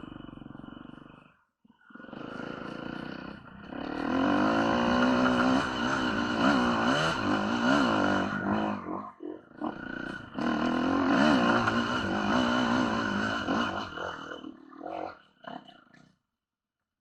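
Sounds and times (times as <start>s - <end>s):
motorcycle engine revving: 0.0s - 1.3s, 1.9s - 14.8s.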